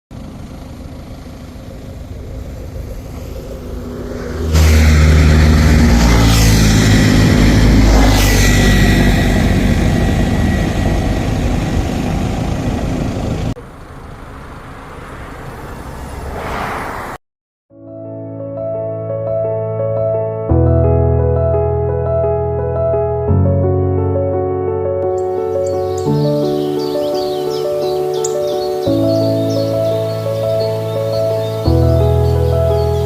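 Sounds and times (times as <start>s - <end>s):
drone motors and propellers: 0.3s - 17.2s
wind rush: 2.1s - 13.5s, 16.1s - 17.2s.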